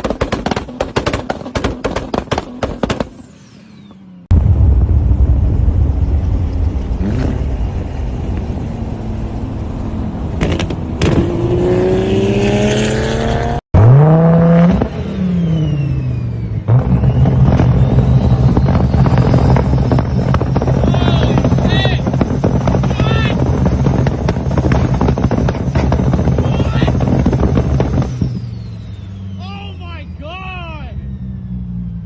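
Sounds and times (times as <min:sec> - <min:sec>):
engine sharp cracks: 0:00.0 - 0:08.5, 0:16.7 - 0:29.4
car engine revving: 0:00.5 - 0:32.0.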